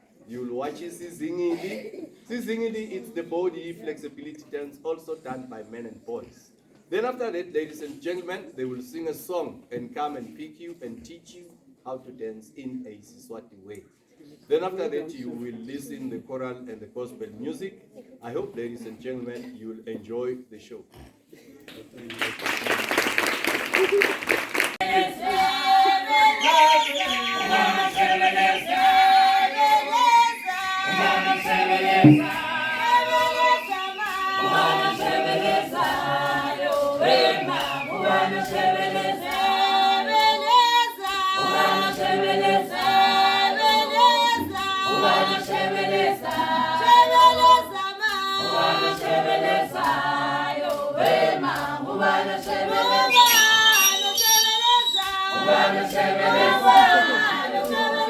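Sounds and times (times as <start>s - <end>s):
group singing in harmony: 24.7s - 58.0s.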